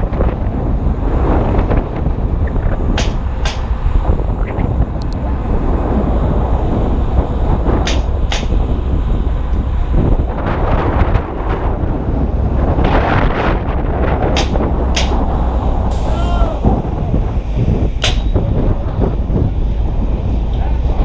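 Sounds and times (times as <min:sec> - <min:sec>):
wind buffeting microphone: 0:00.0 - 0:21.0
sharp knocks: 0:03.0 - 0:03.8, 0:07.8 - 0:08.7, 0:14.3 - 0:15.3, 0:17.9 - 0:18.6.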